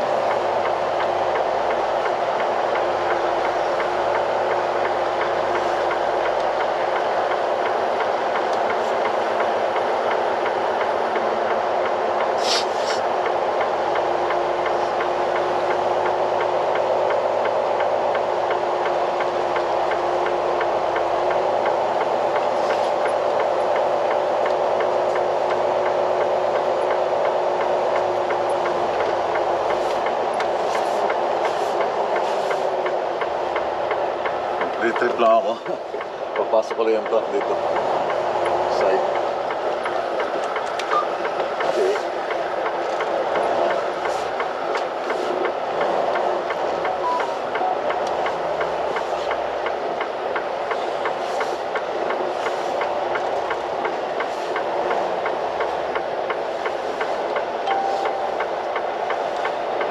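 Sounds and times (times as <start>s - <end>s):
heavy vehicle droning hum: 0.0s - 59.9s.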